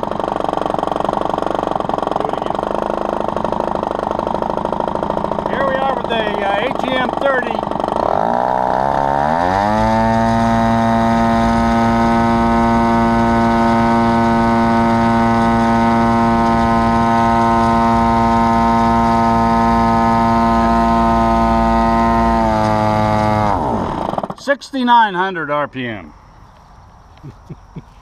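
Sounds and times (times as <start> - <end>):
two-stroke model engine at full throttle: 0.0 - 24.4.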